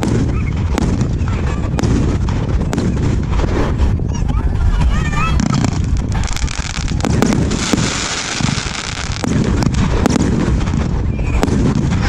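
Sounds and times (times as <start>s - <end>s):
firework crackle: 0.0s - 12.0s
low rumble: 0.0s - 12.0s
firework cake shot bursts: 5.3s - 12.0s.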